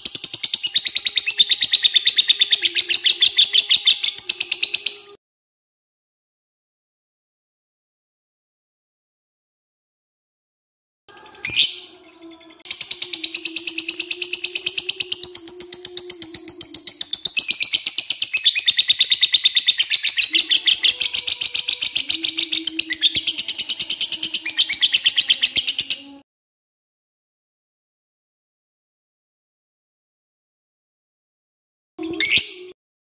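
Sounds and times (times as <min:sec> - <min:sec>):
lovebird chattering trill: 0:11.2 - 0:26.2.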